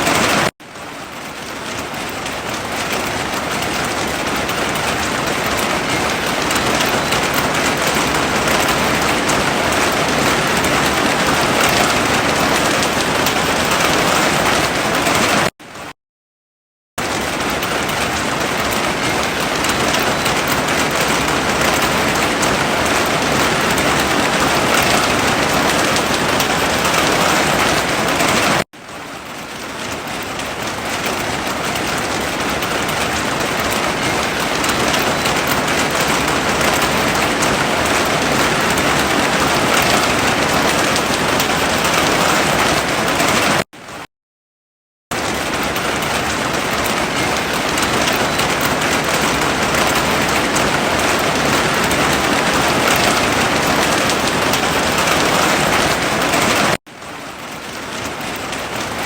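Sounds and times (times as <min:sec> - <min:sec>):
heavy rain falling: 0:00.0 - 0:15.9, 0:17.0 - 0:44.0, 0:45.1 - 0:59.0.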